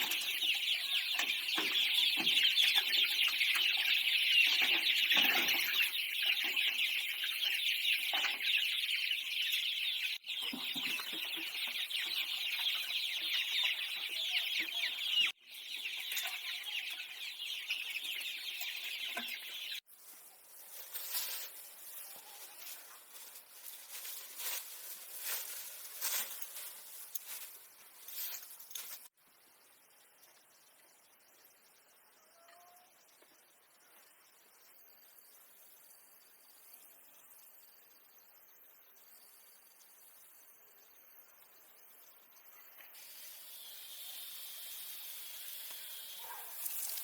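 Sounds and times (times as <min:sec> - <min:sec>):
chickens clucking: 0:00.0 - 0:19.8, 0:45.0 - 0:46.6
high-pitched hiss: 0:41.8 - 0:47.0.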